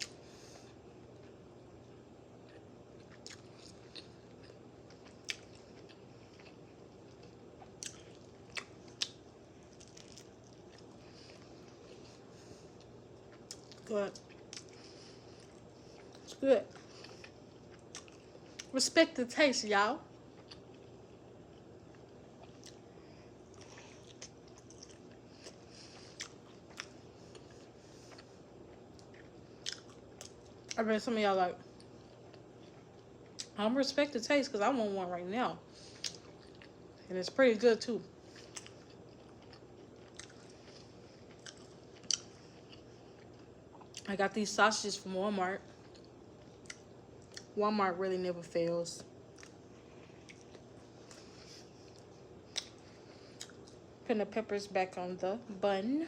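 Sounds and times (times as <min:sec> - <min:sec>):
close-miked chewing: 0:02.4 - 0:18.8, 0:20.3 - 0:20.9, 0:21.5 - 0:22.9, 0:23.5 - 0:30.8, 0:35.8 - 0:36.8, 0:38.2 - 0:44.1, 0:45.8 - 0:47.6, 0:49.3 - 0:53.8.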